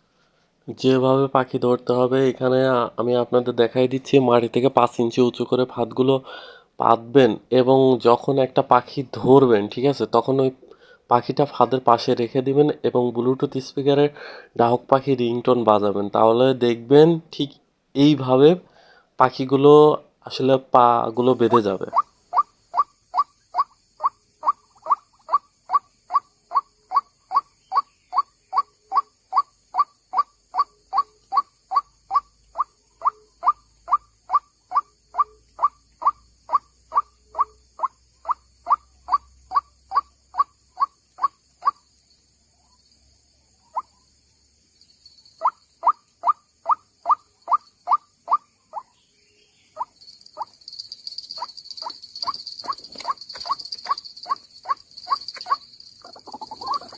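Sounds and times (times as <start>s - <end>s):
waterhen calling: 21.4s - 41.8s, 43.6s - 44.0s, 45.4s - 48.9s, 49.7s - 50.5s, 51.4s - 56.9s.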